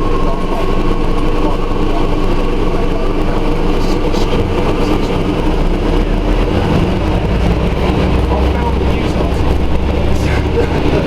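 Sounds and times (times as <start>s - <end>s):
bus engine droning: 0.0s - 11.0s.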